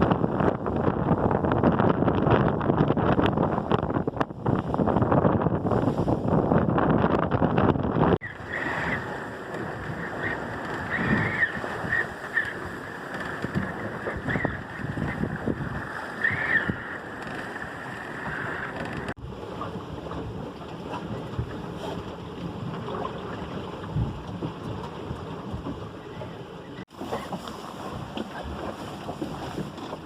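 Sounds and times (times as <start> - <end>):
wind buffeting microphone: 0.0 - 30.0
water rushing: 8.2 - 30.0.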